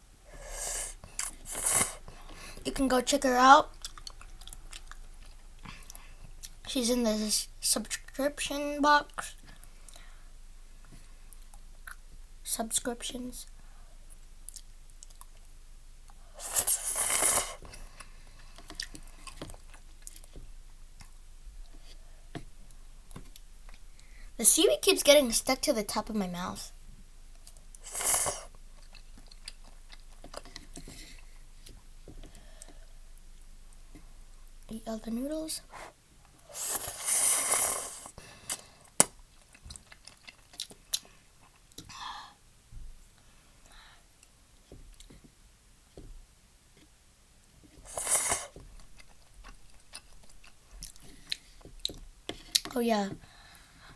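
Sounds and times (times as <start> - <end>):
loud noodle slurp: 0.4 - 2.0, 16.4 - 17.6, 27.8 - 28.5, 36.5 - 38.2, 47.9 - 48.6
soft chewing: 3.6 - 6.7, 10.8 - 12.2, 14.1 - 24.2, 26.9 - 34.7, 35.7 - 42.0, 47.6 - 52.8
chewing with clicks: 3.7 - 6.7, 14.5 - 15.5, 39.0 - 41.9, 48.8 - 52.8.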